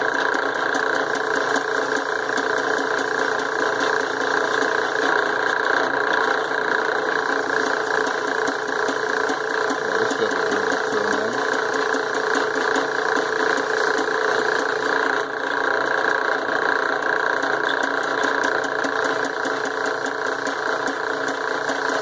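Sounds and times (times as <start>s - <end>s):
drill press motor humming: 0.0s - 22.0s
drilling into steel: 0.0s - 22.0s.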